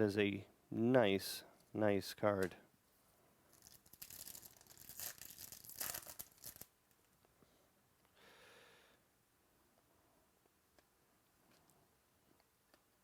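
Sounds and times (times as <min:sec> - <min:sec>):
trading cards rustling: 0:03.5 - 0:06.7.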